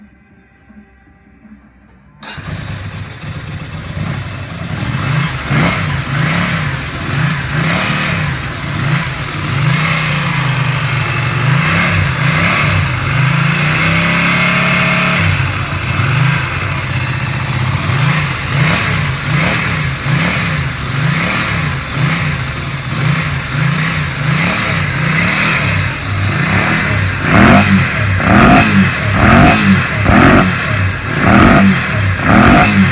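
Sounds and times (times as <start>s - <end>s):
motorcycle engine revving: 2.2s - 32.9s.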